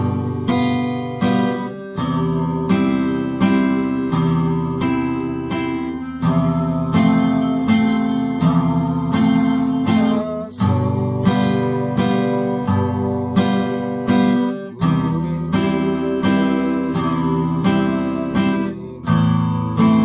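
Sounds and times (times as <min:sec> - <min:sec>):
acoustic guitar strummed in waltz rhythm: 0:00.0 - 0:20.0.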